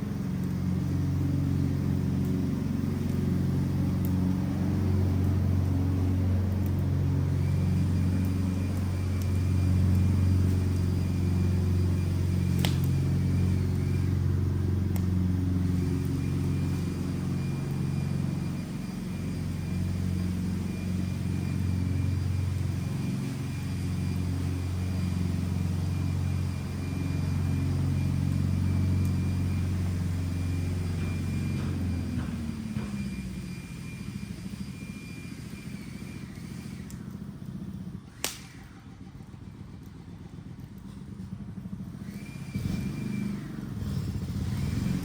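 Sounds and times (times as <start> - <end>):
low engine hum: 0.0 - 45.0
sharp click: 38.2 - 38.7.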